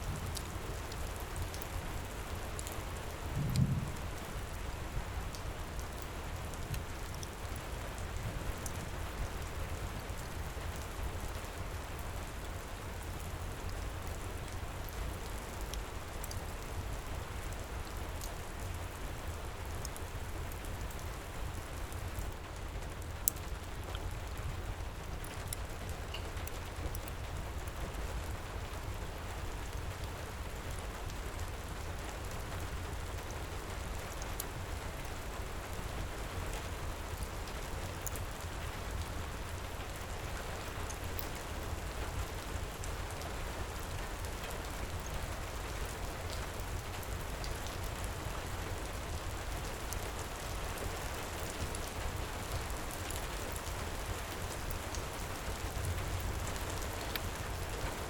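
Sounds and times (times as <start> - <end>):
heavy rain falling: 0.0 - 58.0
wood fire crackling: 0.0 - 58.0
deep low rumble: 3.3 - 4.4.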